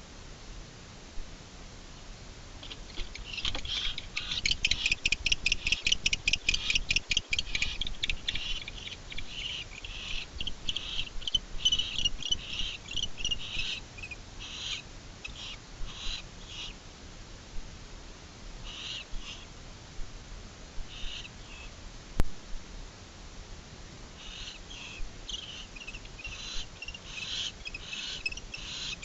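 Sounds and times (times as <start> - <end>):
barn owls calling: 2.6 - 16.8, 18.6 - 19.5, 20.8 - 21.8, 24.2 - 29.0.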